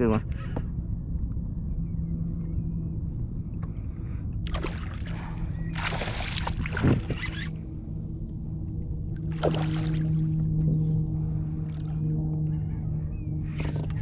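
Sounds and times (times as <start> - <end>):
wind rumble on microphone: 0.0 - 14.0
water splashing against kayak: 4.5 - 7.5.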